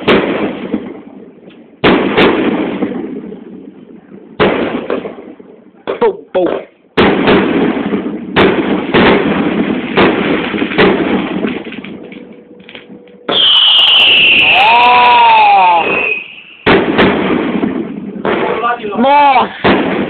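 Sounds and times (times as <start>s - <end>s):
fireworks bangs: 0.0s - 20.0s
firework hiss and whistle: 13.3s - 16.8s.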